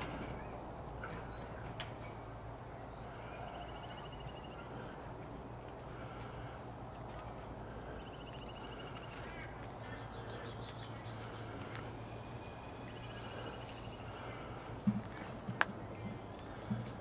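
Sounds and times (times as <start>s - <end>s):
steady low hum: 0.0s - 17.0s
songbird high trills: 10.0s - 14.4s.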